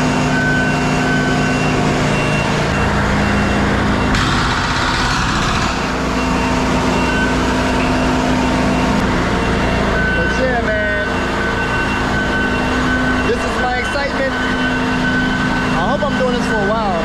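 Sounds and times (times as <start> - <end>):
diesel engine running loudly: 0.0 - 17.0
reversing alarm beeping: 0.0 - 17.0.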